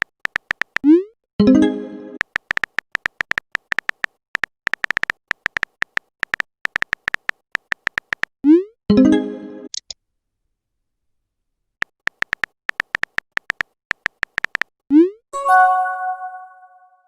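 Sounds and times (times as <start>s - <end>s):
electronic message-sent chime: 15.4s - 17.0s.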